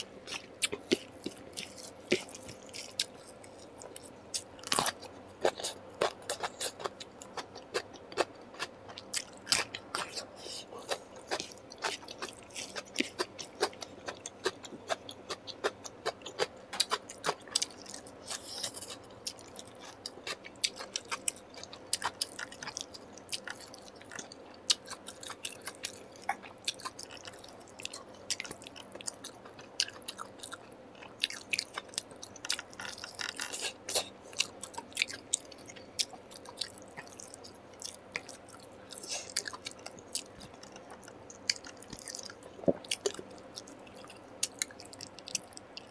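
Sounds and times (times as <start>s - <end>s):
wet chewing and mouth clicks: 0.2s - 45.9s
food crunch: 10.8s - 45.9s.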